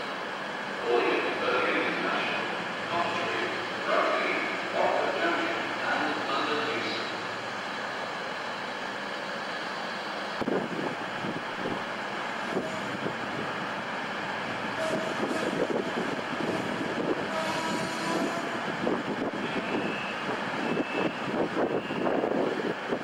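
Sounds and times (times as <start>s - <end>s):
train rumbling: 0.0s - 23.0s.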